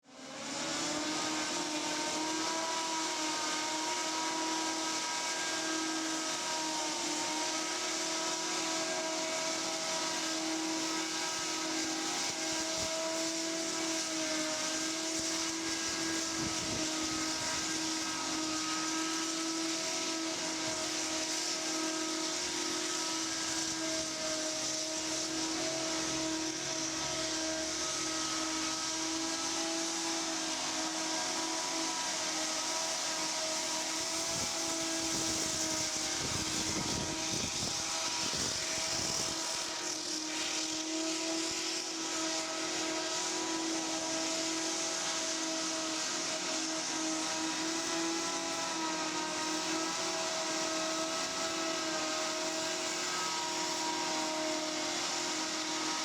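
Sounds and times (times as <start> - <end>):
rushing hiss: 0.6 - 56.0.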